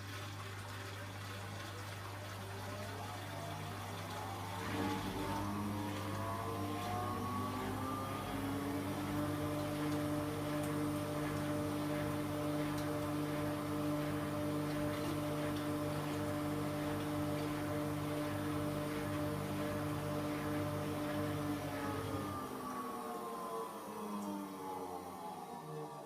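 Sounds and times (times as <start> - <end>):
washing machine motor whine: 0.0 - 26.0.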